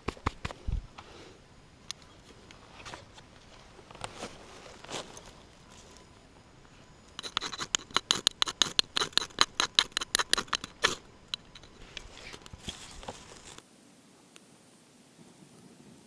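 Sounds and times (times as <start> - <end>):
sharp clicks: 7.1 - 12.6.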